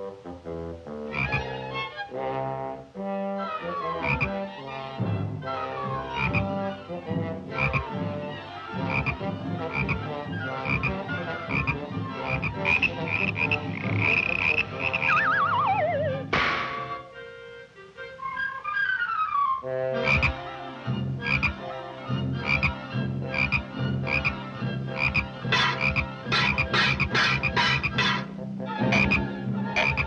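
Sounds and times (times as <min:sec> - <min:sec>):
cartoon music: 0:01.1 - 0:01.9, 0:05.5 - 0:08.1, 0:08.7 - 0:17.0, 0:22.4 - 0:30.0
falling whistle-like glide: 0:15.1 - 0:16.3.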